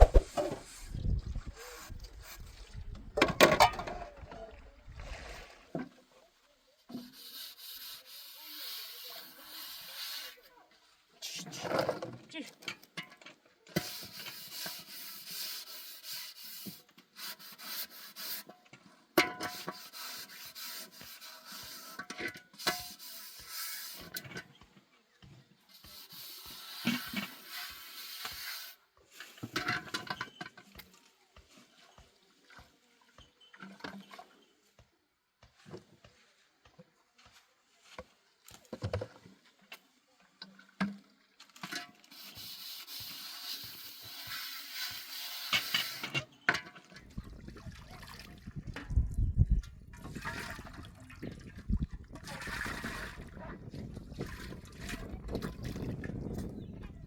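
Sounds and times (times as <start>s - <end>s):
scraping strokes: 0.0s - 2.8s, 6.9s - 10.6s, 13.8s - 18.5s, 19.4s - 24.6s, 25.7s - 30.2s, 41.7s - 46.3s.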